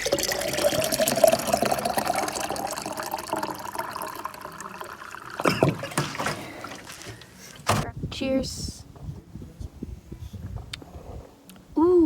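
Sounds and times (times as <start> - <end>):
water pouring into a mug: 0.0 - 7.0.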